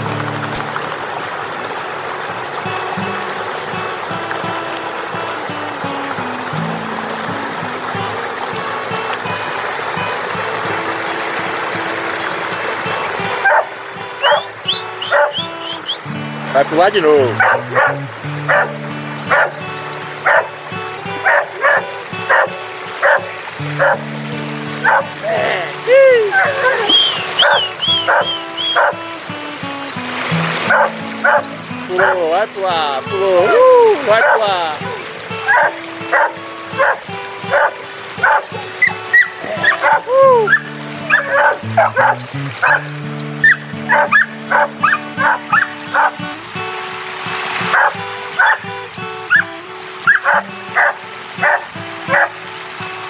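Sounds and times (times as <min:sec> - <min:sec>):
dog barking: 0:13.4 - 0:15.5, 0:17.2 - 0:19.6, 0:20.2 - 0:20.6, 0:21.2 - 0:24.1, 0:24.8 - 0:25.2, 0:26.3 - 0:29.0, 0:30.6 - 0:32.2, 0:34.1 - 0:34.6, 0:35.4 - 0:46.2, 0:47.7 - 0:48.6, 0:49.3 - 0:49.5, 0:50.1 - 0:52.4
background music: 0:13.4 - 0:46.5.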